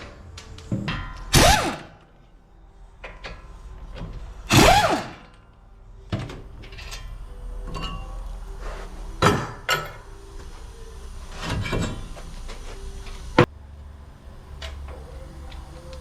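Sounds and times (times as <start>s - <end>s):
power tool whirring: 1.3s - 2.0s, 4.4s - 5.4s.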